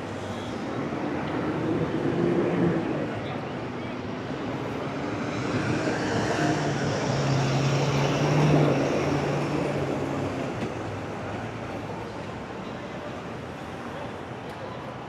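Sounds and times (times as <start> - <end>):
road noise: 0.0 - 15.0
large vehicle engine passing: 4.9 - 10.3.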